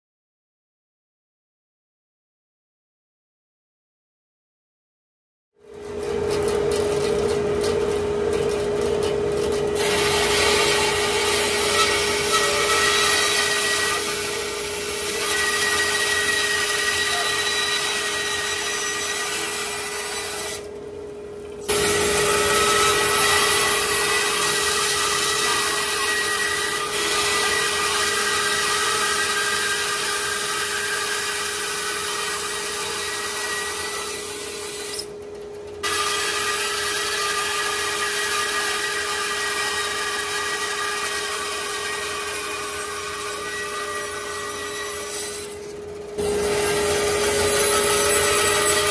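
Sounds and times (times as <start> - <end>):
wood lathe humming: 9.8 - 20.7, 21.7 - 35.0, 35.9 - 48.9
tool scraping wood: 21.6 - 35.1, 35.9 - 48.9.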